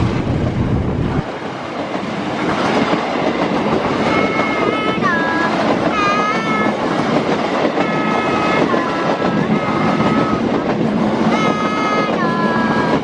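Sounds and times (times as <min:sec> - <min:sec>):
passenger train rumbling past: 0:00.0 - 0:13.0
locomotive horn blasts: 0:04.0 - 0:06.8, 0:07.8 - 0:10.6, 0:11.3 - 0:13.0.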